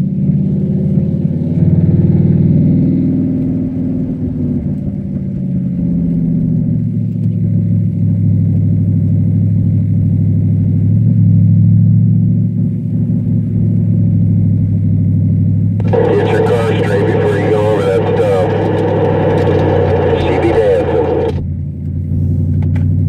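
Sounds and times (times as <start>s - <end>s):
car engine running at low revs: 0.0s - 23.0s.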